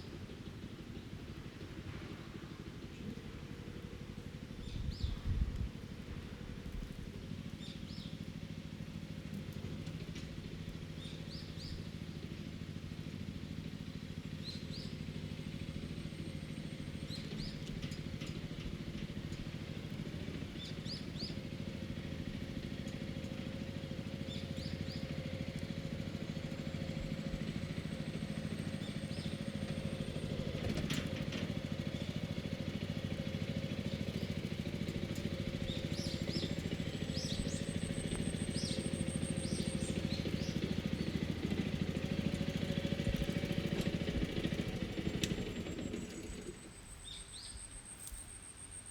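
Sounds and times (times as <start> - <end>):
motor engine droning: 0.0 - 48.9
bird chirping: 35.6 - 41.2, 45.9 - 48.9.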